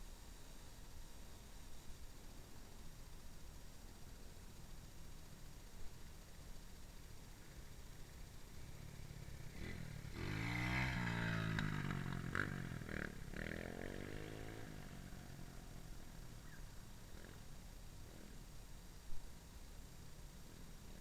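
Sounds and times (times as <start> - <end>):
dirt bike engine revving: 8.5 - 17.4, 18.0 - 18.4.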